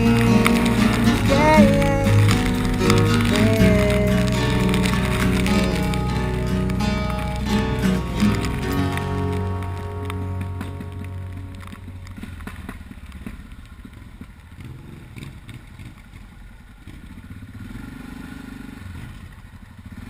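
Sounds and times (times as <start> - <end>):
music: 0.0 - 12.6
motorcycle engine idling: 0.0 - 20.0.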